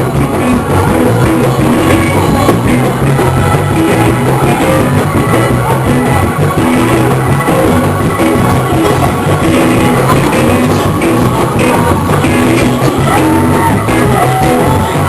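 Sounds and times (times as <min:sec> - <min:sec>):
live gospel band music: 0:00.0 - 0:15.0.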